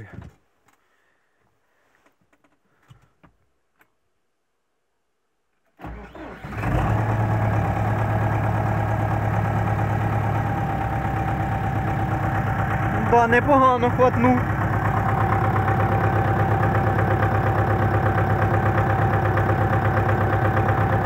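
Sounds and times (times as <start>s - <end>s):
diesel engine cranking: 5.8s - 21.0s
diesel engine running: 6.4s - 21.0s.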